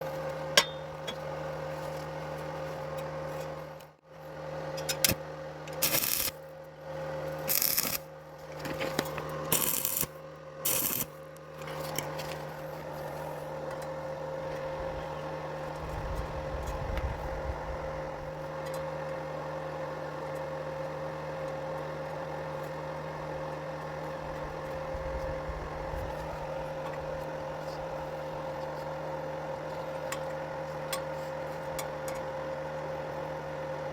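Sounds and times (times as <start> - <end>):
electrical hum: 0.0 - 33.9
welding arc crackling: 5.8 - 6.4, 7.4 - 8.1, 9.5 - 11.2.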